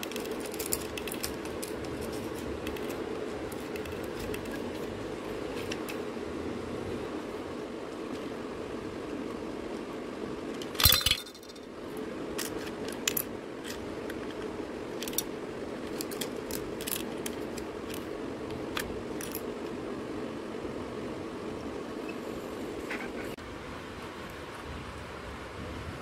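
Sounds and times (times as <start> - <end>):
plastic parts clatter: 0.0 - 4.9, 10.6 - 11.7, 12.4 - 18.1, 18.7 - 19.4
plastic toy parts clicking: 0.0 - 4.9, 10.6 - 11.7, 12.4 - 19.4.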